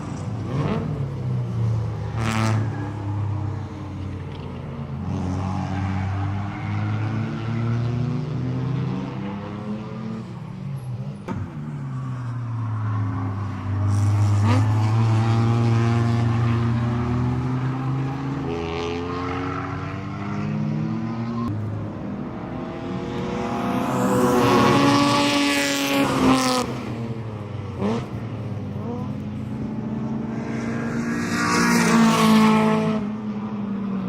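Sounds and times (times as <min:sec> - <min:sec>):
race car engine revving: 0:13.4 - 0:33.2.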